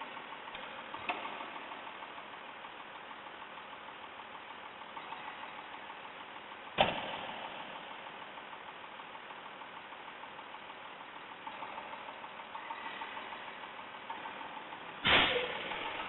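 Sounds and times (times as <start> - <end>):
garbage truck engine idling: 0.0 - 16.0
loud sharp bang: 6.8 - 7.5, 15.0 - 16.0.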